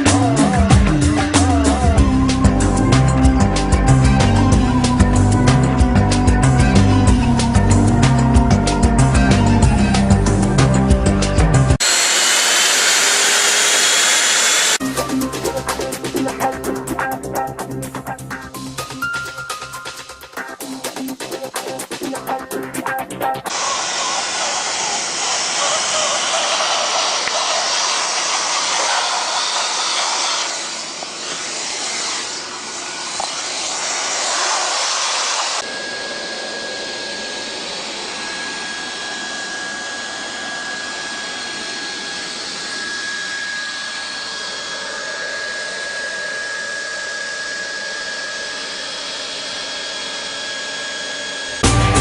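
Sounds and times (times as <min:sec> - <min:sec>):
hot-air welder blowing: 0:11.8 - 0:15.0, 0:23.5 - 0:52.0.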